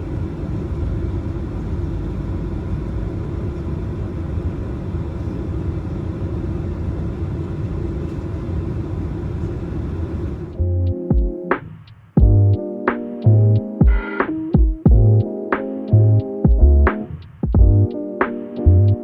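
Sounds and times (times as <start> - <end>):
faint constant whine: 0.0 - 10.7
jet engines rumbling at idle: 0.0 - 10.7.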